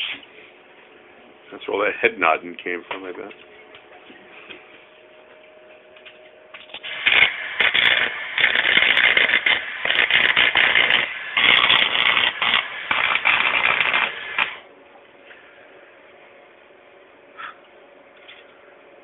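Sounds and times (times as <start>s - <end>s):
electric arc welding crackling: 6.6s - 14.6s.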